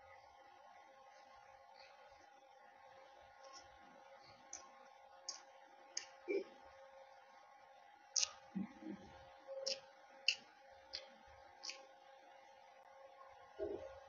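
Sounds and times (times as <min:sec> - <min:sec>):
chewing with wet clicks and lip smacks: 0:08.2 - 0:08.7, 0:09.6 - 0:11.8.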